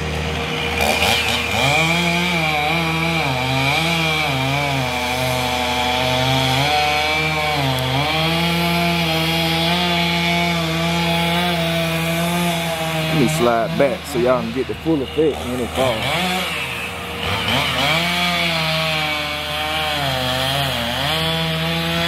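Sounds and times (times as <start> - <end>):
chainsaw cutting tree: 0.0 - 22.0.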